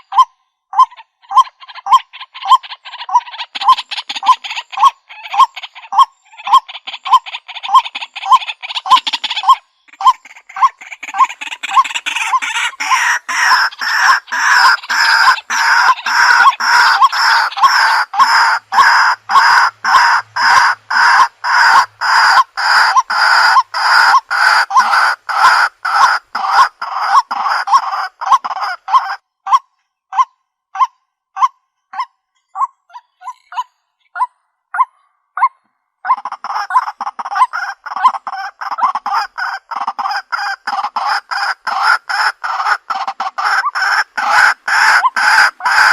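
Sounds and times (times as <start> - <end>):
waterhen calling harsh notes: 0.0 - 45.9.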